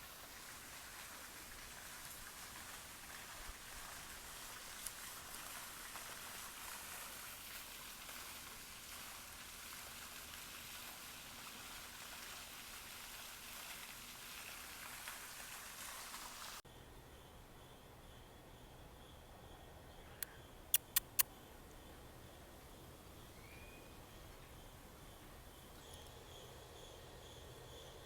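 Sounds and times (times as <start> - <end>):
rain patter: 0.0 - 16.6.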